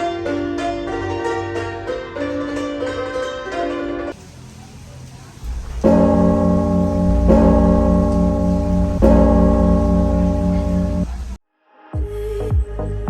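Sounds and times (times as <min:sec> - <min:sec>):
deep bell ringing: 0:05.4 - 0:11.4.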